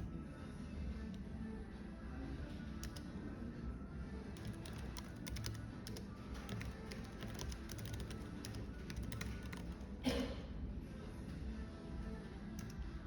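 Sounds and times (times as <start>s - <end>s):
computer keyboard typing: 2.7s - 3.1s, 4.3s - 9.9s, 12.6s - 12.8s.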